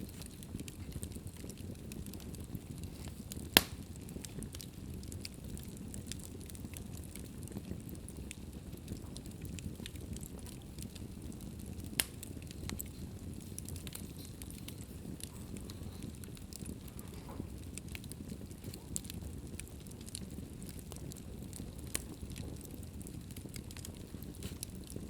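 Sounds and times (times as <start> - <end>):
wood fire crackling: 0.0 - 25.0
sharp pop from fire: 3.6 - 4.6, 11.9 - 12.8, 23.8 - 24.7.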